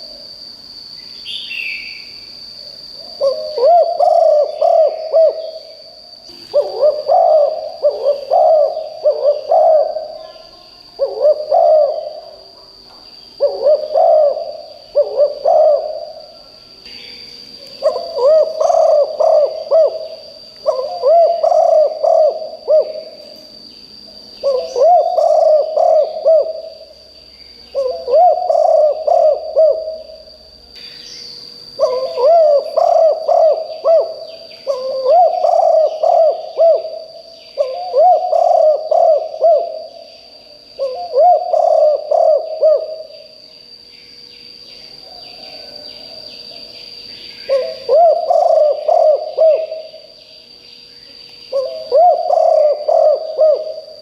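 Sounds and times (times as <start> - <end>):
steady high whine: 0.0 - 54.0
faint bird chirps: 0.9 - 54.0
dove cooing: 3.0 - 12.6, 13.4 - 16.6, 17.8 - 23.5, 24.4 - 27.0, 27.7 - 30.4, 31.8 - 43.4, 45.0 - 46.6, 47.4 - 50.2, 51.5 - 54.0.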